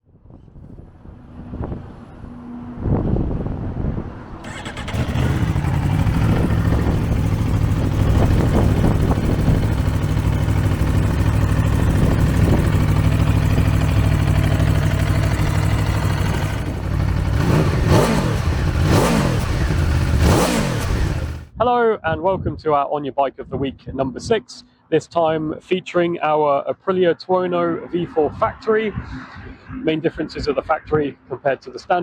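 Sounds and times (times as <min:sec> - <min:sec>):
motorcycle engine idling and revving: 0:04.4 - 0:21.5.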